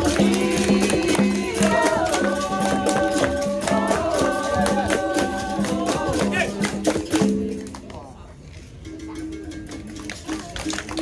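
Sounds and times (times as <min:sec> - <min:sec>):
people singing held notes: 0:00.0 - 0:07.8.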